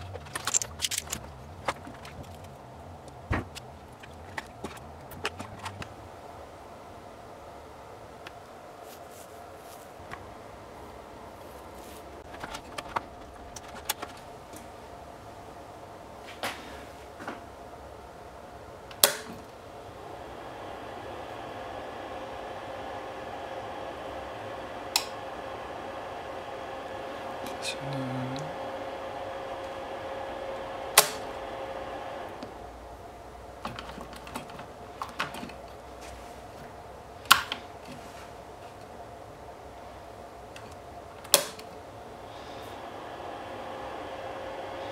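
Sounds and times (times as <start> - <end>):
hard objects clicking and knocking: 0.0 - 6.0
faint steady hum: 0.0 - 44.9
sharp clicks: 18.9 - 19.5.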